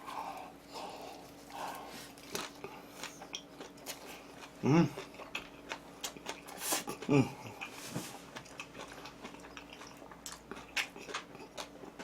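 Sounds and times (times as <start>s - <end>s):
person chewing and crunching: 0.0s - 12.0s
short hummed voice: 4.6s - 5.0s, 6.9s - 7.6s.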